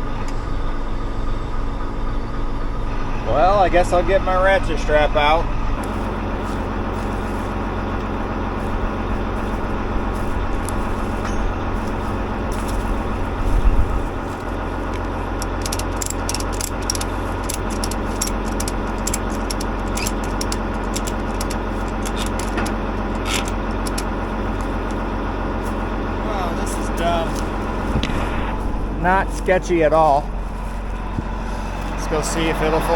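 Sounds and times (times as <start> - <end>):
tractor engine idling: 0.0 - 32.9
metallic clicks and clanks: 14.4 - 25.0.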